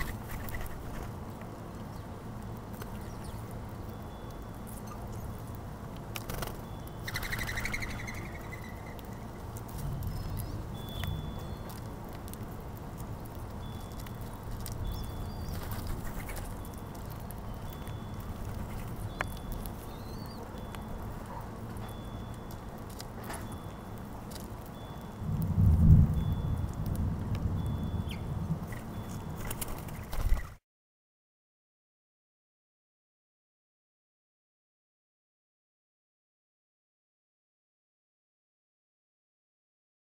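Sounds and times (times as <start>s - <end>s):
wings fluttering: 0.0s - 2.0s, 2.7s - 3.7s, 6.1s - 20.7s, 28.1s - 30.6s
small birds chirping: 0.0s - 25.2s, 27.5s - 30.6s
steady low rumble: 0.1s - 30.0s.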